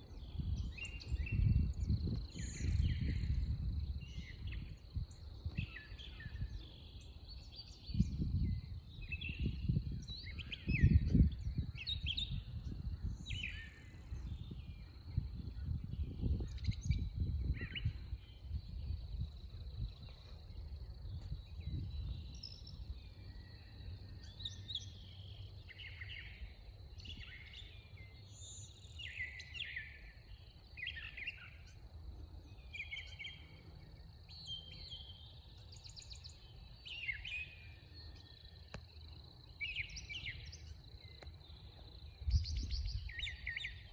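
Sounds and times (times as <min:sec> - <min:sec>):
low rumble on microphone: 0:00.0 - 0:24.7, 0:41.6 - 0:43.9.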